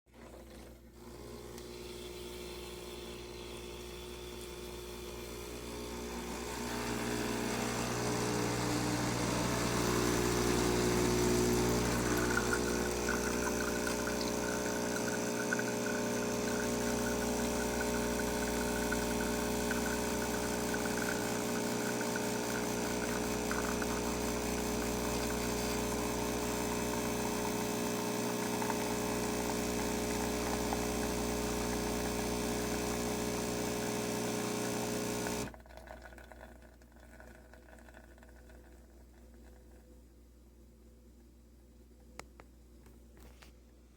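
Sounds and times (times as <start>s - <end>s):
espresso machine pump buzzing: 1.0s - 35.6s.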